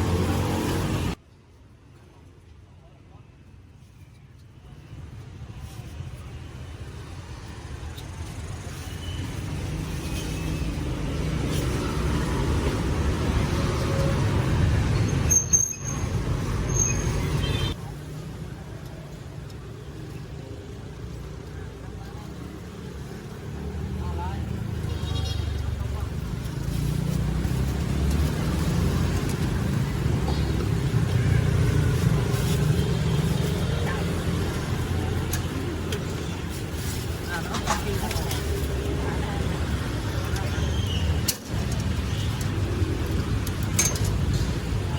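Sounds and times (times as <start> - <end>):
road traffic rumble: 0.0 - 1.2, 4.6 - 44.9
vehicle engine rumble: 25.5 - 44.9.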